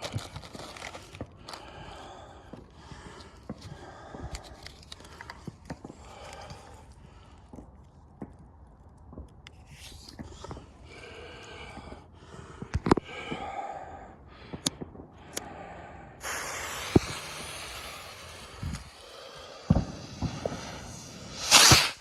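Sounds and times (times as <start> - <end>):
fireworks bangs: 16.2 - 22.0
fireworks crackling burst: 16.2 - 22.0
fireworks hissing rush: 16.2 - 22.0.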